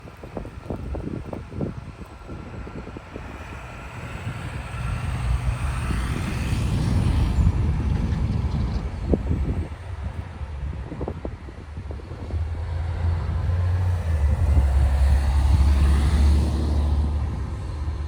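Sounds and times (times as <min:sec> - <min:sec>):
vehicle engine passing by: 0:12.4 - 0:18.0.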